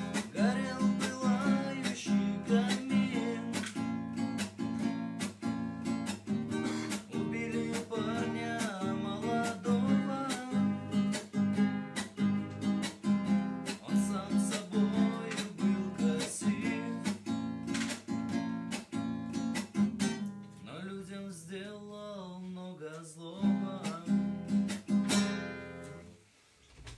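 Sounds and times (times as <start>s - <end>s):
man singing ballad: 0.0s - 3.7s, 7.0s - 11.0s, 13.8s - 17.2s, 20.6s - 24.3s
acoustic guitar strumming: 0.0s - 20.8s, 23.3s - 26.1s.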